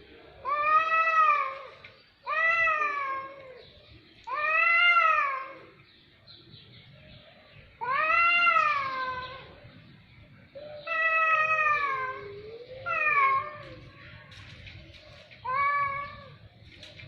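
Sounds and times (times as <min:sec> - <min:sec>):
cat meowing: 0:04.3 - 0:05.8, 0:07.8 - 0:09.6, 0:10.8 - 0:13.9, 0:15.4 - 0:16.4.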